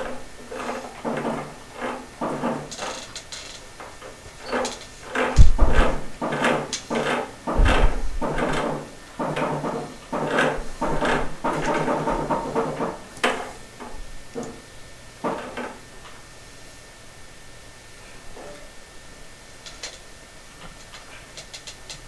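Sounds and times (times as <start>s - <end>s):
heavy bumps of tube: 4.5s - 13.4s.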